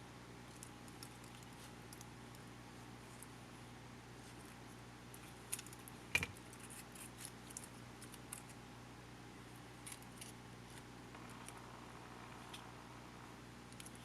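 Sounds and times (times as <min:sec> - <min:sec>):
steady low hum: 0:00.0 - 0:14.0
small parts and tools clicking: 0:09.8 - 0:11.7, 0:13.7 - 0:14.0.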